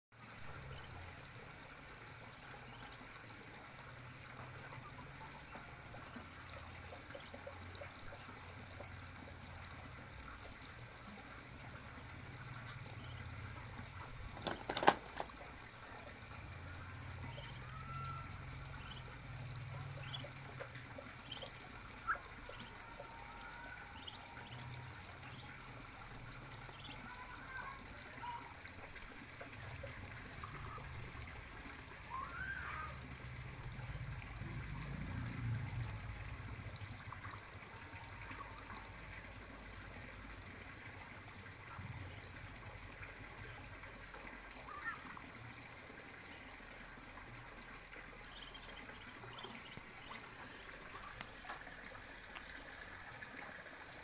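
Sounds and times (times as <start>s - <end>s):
water trickling: 0.2s - 54.0s.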